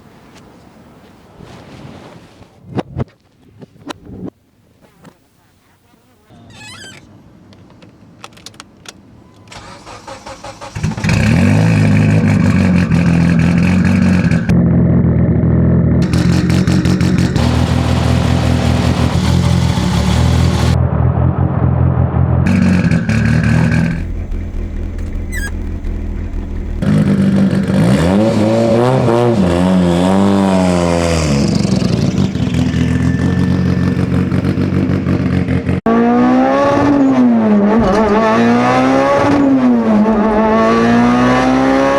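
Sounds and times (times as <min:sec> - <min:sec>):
car engine cranking: 0:08.3 - 0:14.5, 0:16.0 - 0:20.8, 0:22.5 - 0:35.6
car engine idling and revving: 0:09.5 - 0:41.9.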